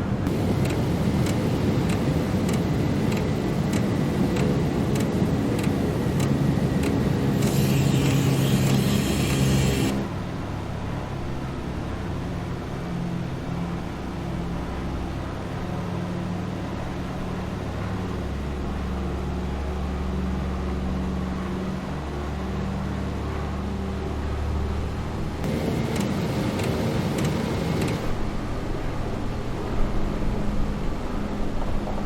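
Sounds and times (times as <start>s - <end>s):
rush of noise with rattling: 0.0s - 10.6s
propeller plane engines droning: 0.0s - 32.0s.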